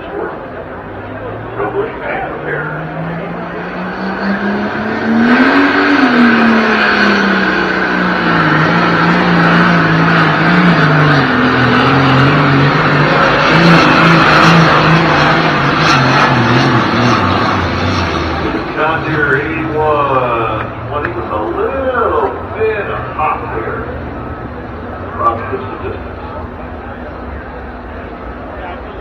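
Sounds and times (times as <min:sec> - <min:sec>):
tractor engine at full power: 0:00.0 - 0:29.0.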